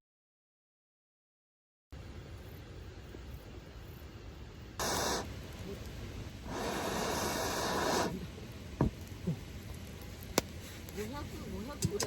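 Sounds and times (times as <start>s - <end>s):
hissing rushing noise: 4.8s - 11.7s.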